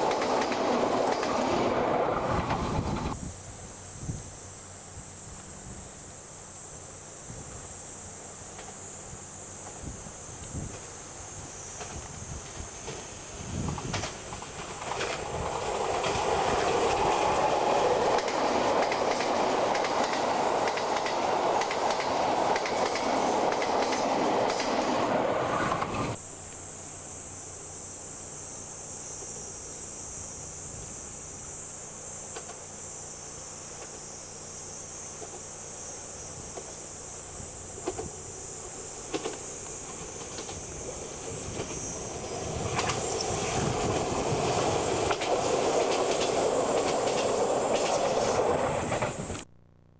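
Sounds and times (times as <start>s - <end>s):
train wheels clattering: 0.0s - 3.2s, 13.7s - 25.1s.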